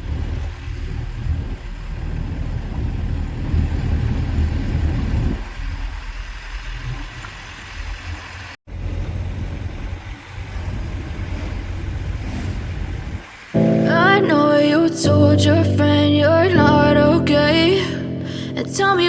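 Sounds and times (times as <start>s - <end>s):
car engine and road rumble: 0.0s - 13.9s.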